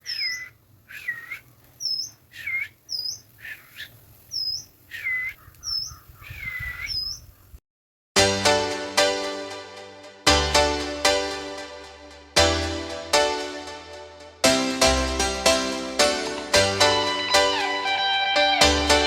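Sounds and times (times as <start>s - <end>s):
birds calling: 0.0s - 7.6s.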